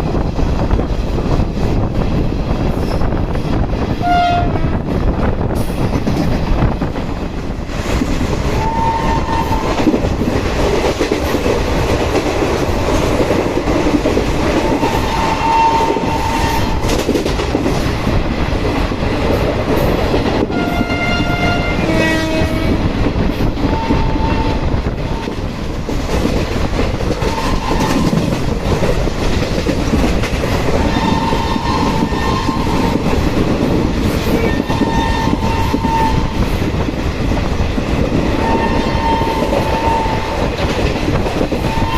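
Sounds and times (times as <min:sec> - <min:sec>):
train rumble and clatter: 0:00.0 - 0:41.9
train horn: 0:04.0 - 0:04.8, 0:08.6 - 0:09.8, 0:14.7 - 0:16.9, 0:20.5 - 0:22.9, 0:23.6 - 0:25.3, 0:30.8 - 0:32.9, 0:34.3 - 0:36.5, 0:38.4 - 0:40.4, 0:41.6 - 0:41.9.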